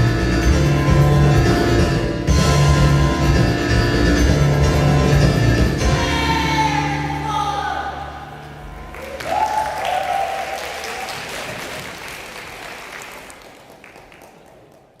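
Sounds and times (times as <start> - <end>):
band chord: 0.0 - 9.0
crowd cheering: 8.4 - 15.0
audience applauding: 8.8 - 15.0.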